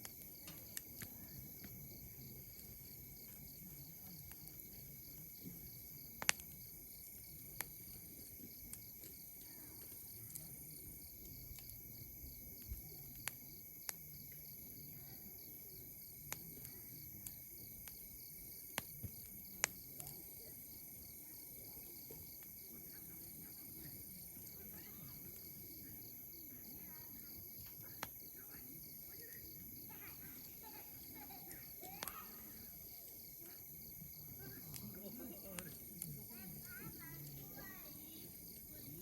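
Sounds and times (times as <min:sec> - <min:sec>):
campfire crackling and popping: 0:00.0 - 0:39.0
high insect chorus: 0:00.0 - 0:39.0.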